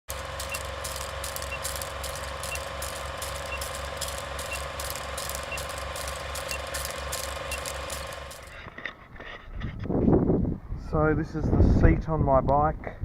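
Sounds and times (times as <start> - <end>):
machine running with low pulsing: 0.1 - 8.6.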